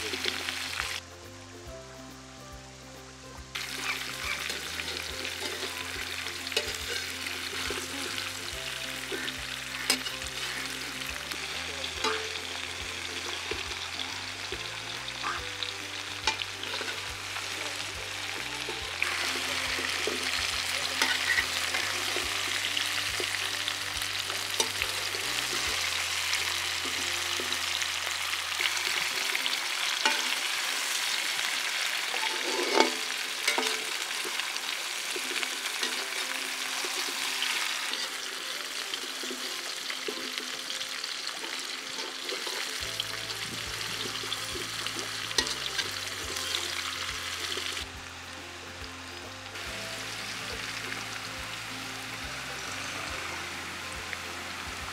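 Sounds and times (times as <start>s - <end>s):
vegetables sizzling in a wok: 0.0s - 54.9s
metal spatula scraping a wok: 3.6s - 13.7s, 16.2s - 23.5s, 28.6s - 31.2s, 31.9s - 38.4s, 41.4s - 47.8s.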